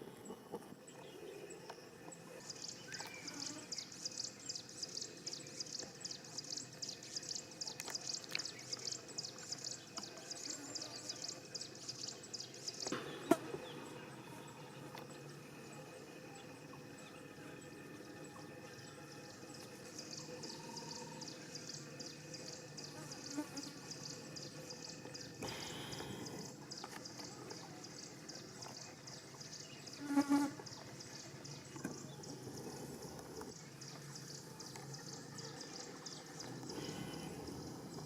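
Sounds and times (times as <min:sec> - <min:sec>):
insects chirping: 0:00.0 - 0:38.0.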